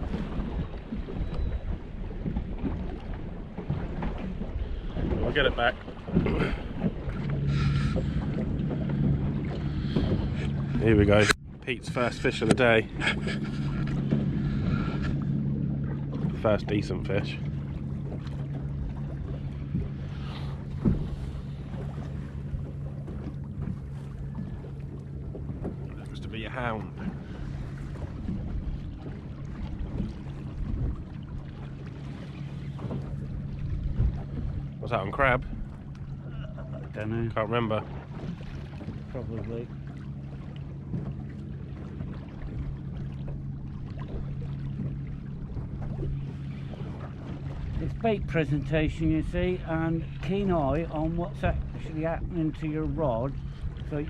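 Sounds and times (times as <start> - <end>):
wind on microphone: 0.0 - 11.4
boat engine low hum: 0.0 - 54.0
steady low drone: 6.0 - 54.0.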